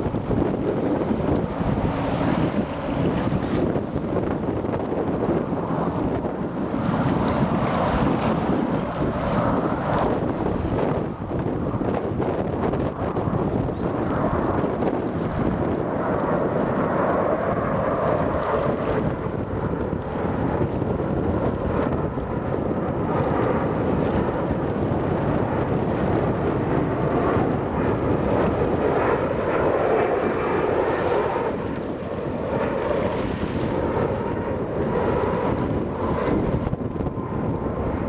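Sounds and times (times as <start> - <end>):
jet engines roaring: 0.0 - 38.0
wind noise on microphone: 0.0 - 38.0.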